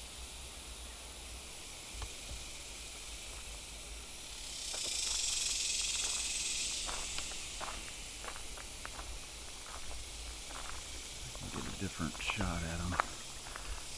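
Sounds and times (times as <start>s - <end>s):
cicadas buzzing: 0.0s - 13.9s
faint ticks: 2.0s - 2.4s.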